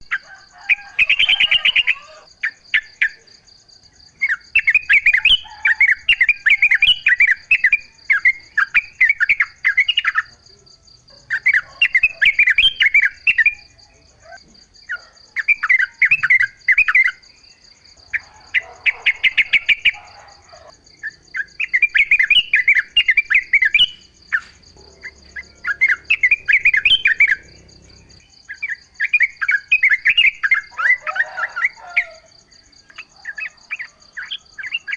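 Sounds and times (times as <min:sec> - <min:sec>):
bird chattering song: 0:18.2 - 0:31.7, 0:32.9 - 0:34.9.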